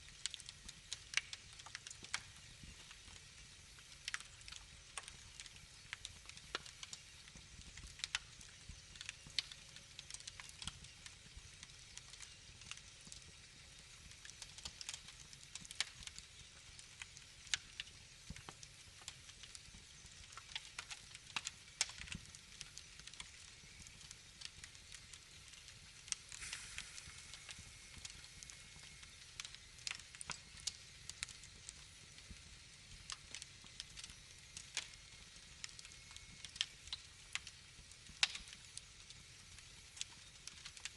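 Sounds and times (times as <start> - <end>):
fire hissing: 0.0 - 40.9
wood fire crackling: 0.0 - 40.9.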